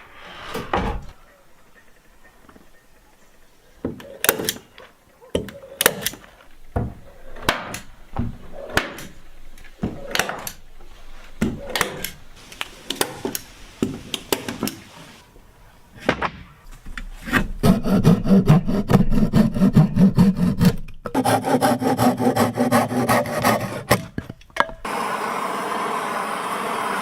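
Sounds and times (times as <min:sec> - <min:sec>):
wood scrapes: 0:00.0 - 0:01.2.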